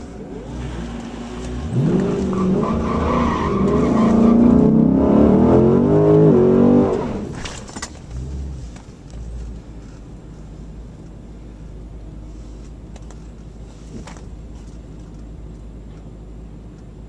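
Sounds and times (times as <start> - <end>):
car engine accelerating hard: 0.0 - 8.8.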